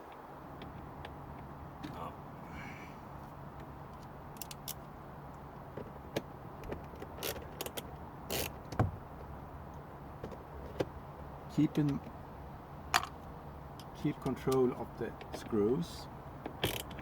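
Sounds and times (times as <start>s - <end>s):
low steady hum: 0.0s - 17.0s
clicks and taps on dashboard trim: 8.6s - 11.0s, 11.7s - 12.2s, 13.8s - 15.7s.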